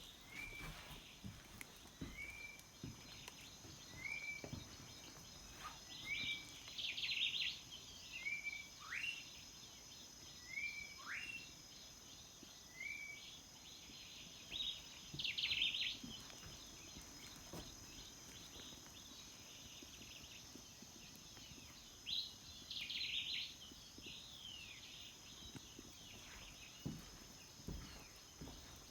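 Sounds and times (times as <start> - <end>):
birds chirping and whistling: 2.0 - 9.3, 10.4 - 11.6.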